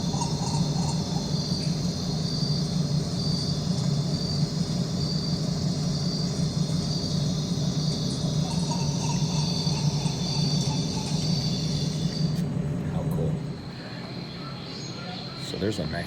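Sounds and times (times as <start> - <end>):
cricket chirping: 0.0 - 12.4
steady low hum: 0.0 - 16.0.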